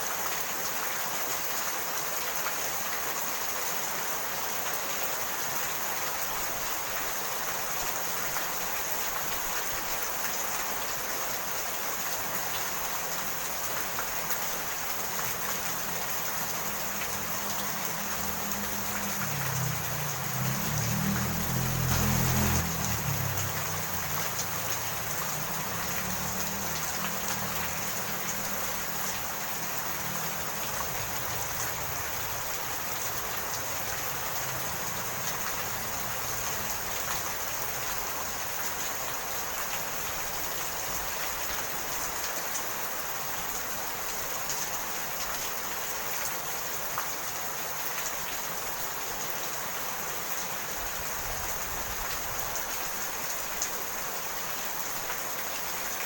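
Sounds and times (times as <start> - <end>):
steady rain falling: 0.0 - 56.0
raindrop ticks: 12.1 - 39.9.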